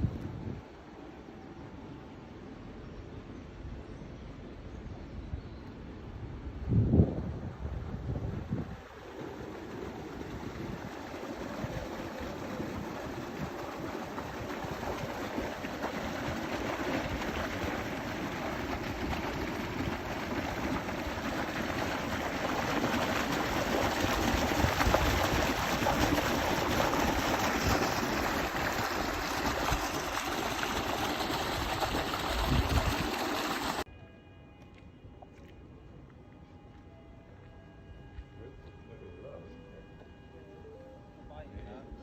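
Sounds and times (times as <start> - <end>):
wind buffeting microphone: 6.1 - 33.8
running water: 8.4 - 33.9.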